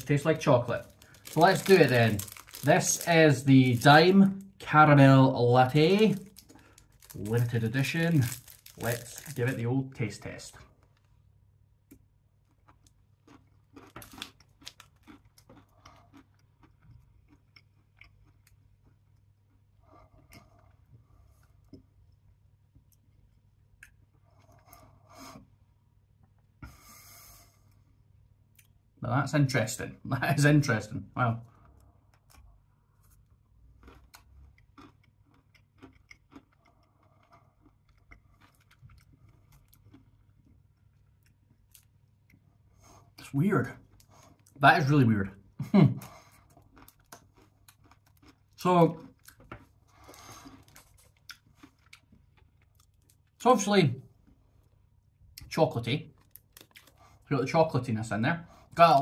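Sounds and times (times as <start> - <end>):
chewing crunchy caramel bar: 0.0 - 11.2, 11.9 - 21.9, 31.4 - 57.3.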